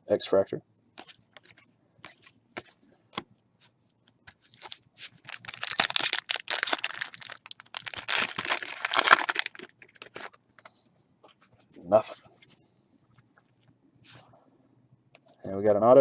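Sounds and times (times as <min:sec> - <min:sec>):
plastic wrapper crinkling and tearing: 0:04.3 - 0:10.4.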